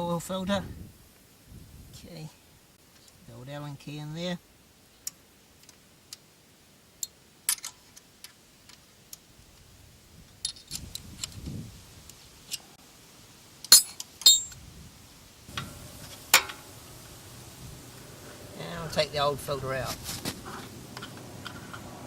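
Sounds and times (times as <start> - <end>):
metallic clinks of tools and parts: 13.7 - 14.6.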